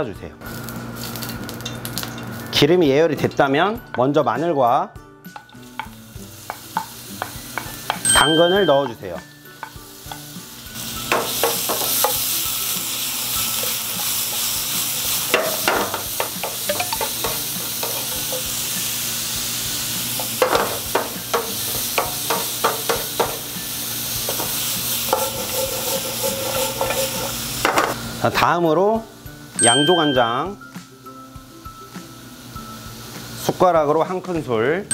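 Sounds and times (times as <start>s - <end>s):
vegetables sizzling in hot oil: 0.4s - 2.6s, 5.3s - 34.9s
wooden spatula scraping pan: 25.0s - 28.0s.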